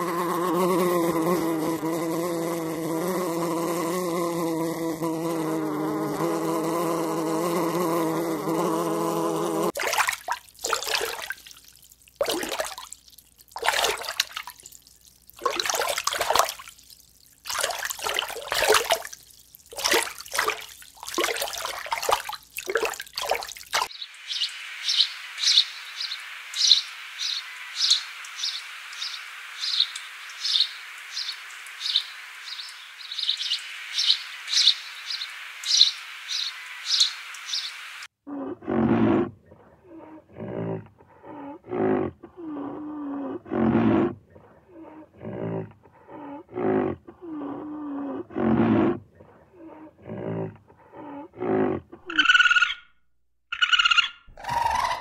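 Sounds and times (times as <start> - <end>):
rushing watery noise: 9.7 - 38.0.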